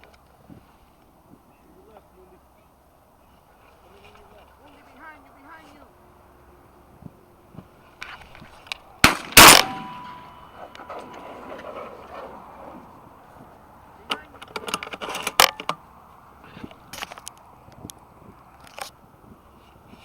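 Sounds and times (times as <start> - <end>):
shotgun blast: 9.0 - 10.3.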